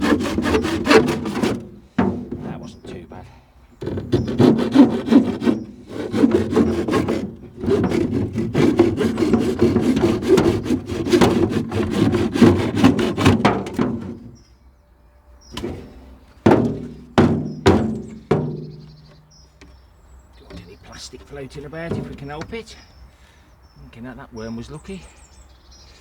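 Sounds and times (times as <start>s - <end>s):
saw cutting plastic: 0.0s - 3.0s, 3.8s - 14.4s, 15.6s - 19.0s, 20.5s - 22.7s
knocks on plastic: 0.4s - 2.8s, 15.6s - 19.8s, 21.8s - 22.7s.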